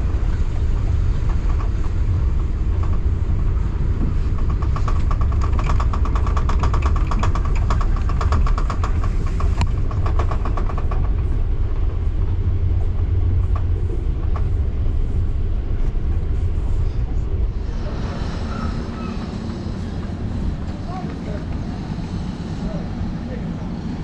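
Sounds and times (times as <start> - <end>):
train wheel clicks: 0.0 - 17.6
train rumbling on rails: 0.0 - 24.0.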